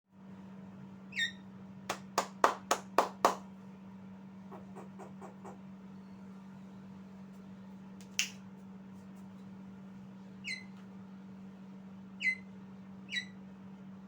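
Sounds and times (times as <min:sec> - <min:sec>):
sharp clap-like snaps: 0:01.9 - 0:03.4, 0:08.0 - 0:08.4.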